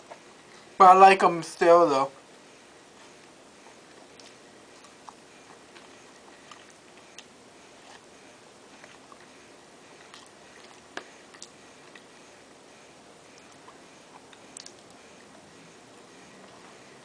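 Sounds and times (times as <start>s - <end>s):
small clicks from eating food: 13.4s - 15.0s.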